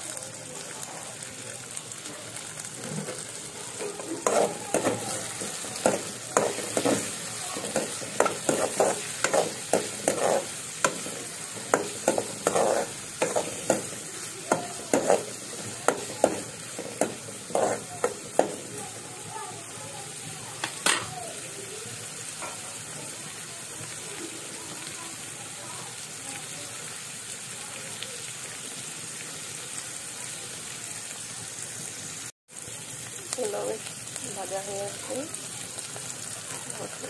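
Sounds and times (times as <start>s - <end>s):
onions sizzling in a pan: 0.0s - 37.0s
metal spoon scraping pan: 3.8s - 18.7s.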